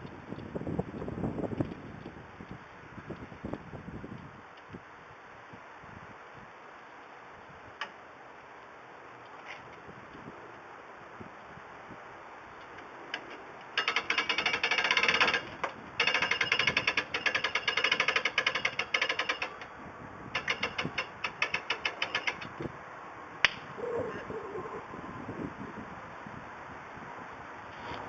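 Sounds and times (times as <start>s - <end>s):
ratchet clicking rapidly: 13.2s - 19.7s, 20.3s - 22.6s.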